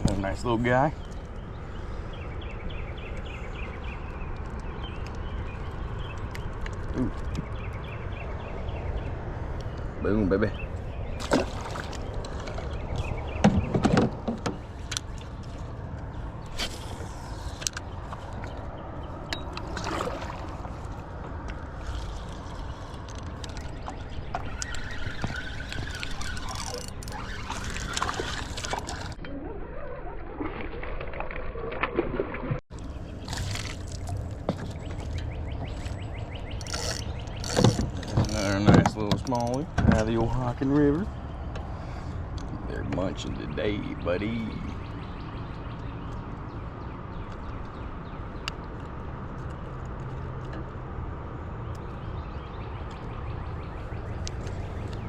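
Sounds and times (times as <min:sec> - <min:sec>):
river water sloshing and splashing: 0:10.8 - 0:29.2, 0:30.3 - 0:36.0.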